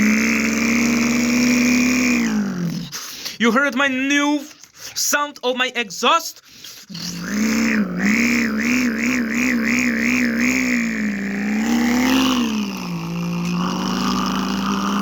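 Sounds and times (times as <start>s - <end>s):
warbling buzzing engine hum: 7.0s - 15.0s.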